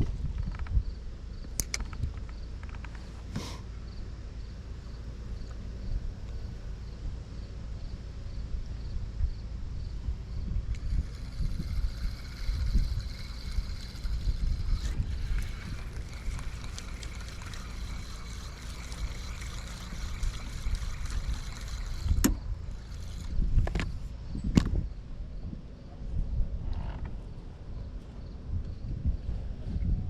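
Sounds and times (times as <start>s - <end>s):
wind buffeting microphone: 0.0s - 2.4s, 9.0s - 30.0s
faint high-pitched hum: 0.0s - 30.0s
sharp clicks: 1.4s - 3.5s.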